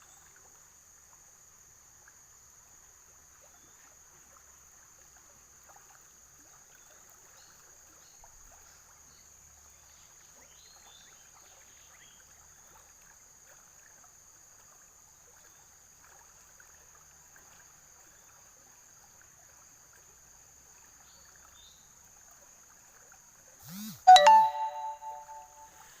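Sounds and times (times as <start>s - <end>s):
loud ringing chime: 24.0s - 25.7s.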